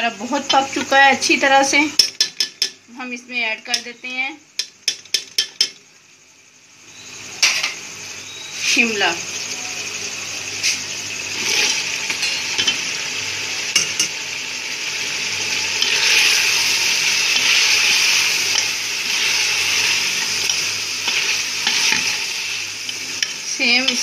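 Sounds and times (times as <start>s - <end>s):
curry sizzling in a pot: 0.0s - 24.0s
metal spoon clicking on pot: 2.0s - 2.8s, 4.6s - 5.8s.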